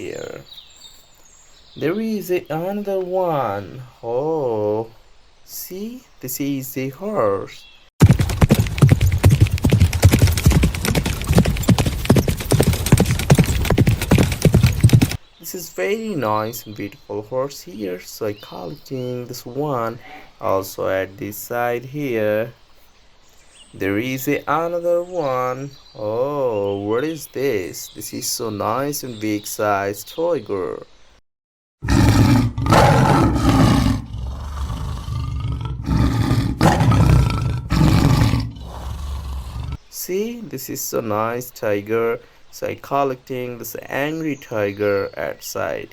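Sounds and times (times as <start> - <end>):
horse hooves clip-clopping: 8.0 - 15.2
tiger roaring and growling: 31.8 - 39.8.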